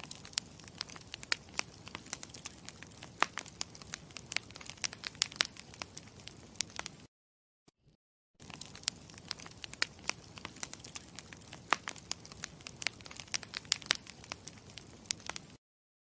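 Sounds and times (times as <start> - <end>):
burning wood snapping and popping: 0.0 - 7.0, 8.4 - 15.6
campfire crackling: 0.0 - 7.1, 8.4 - 15.6.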